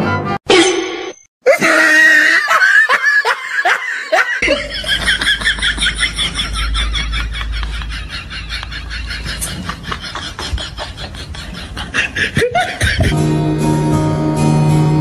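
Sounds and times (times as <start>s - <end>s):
person laughing: 1.4s - 13.2s
low hum: 4.4s - 11.9s.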